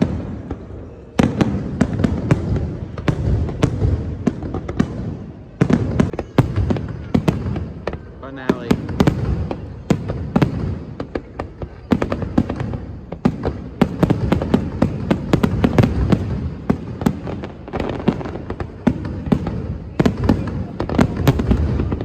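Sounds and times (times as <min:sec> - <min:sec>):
fireworks cracking and popping: 0:00.0 - 0:22.0.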